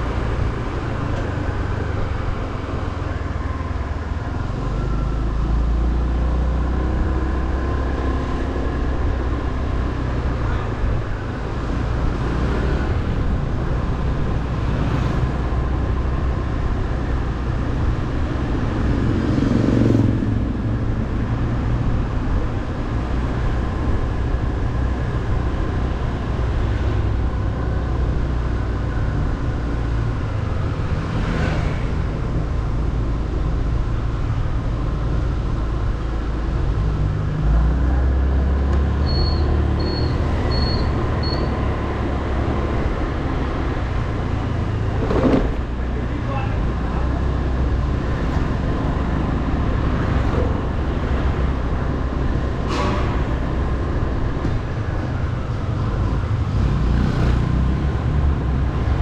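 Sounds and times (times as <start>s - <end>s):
road and wind noise: 0.0s - 59.0s
short high beeps: 39.0s - 41.6s.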